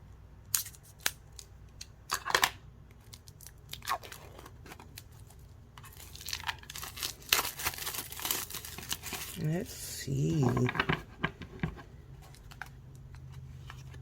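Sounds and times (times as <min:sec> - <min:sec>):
wrapping tearing and crinkling: 0:00.5 - 0:10.9.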